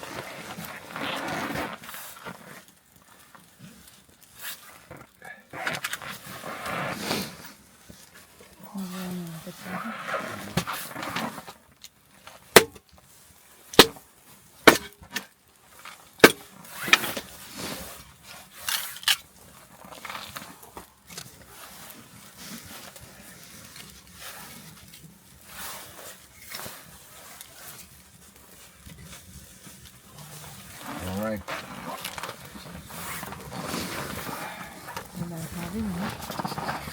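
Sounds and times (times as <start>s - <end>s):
wood fire crackling: 0.0s - 36.9s
sharp loud fire pops: 13.8s - 14.0s.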